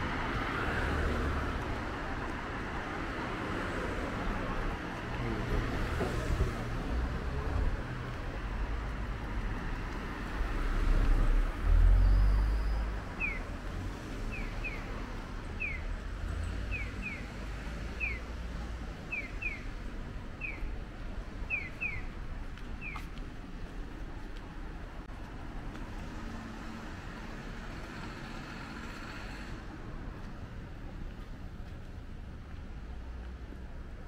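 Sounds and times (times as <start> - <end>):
low street rumble: 0.0 - 34.0
bird chirping: 12.0 - 13.4, 15.6 - 15.9, 16.7 - 17.3, 18.0 - 18.2, 19.1 - 19.7, 20.4 - 20.7, 21.5 - 22.1.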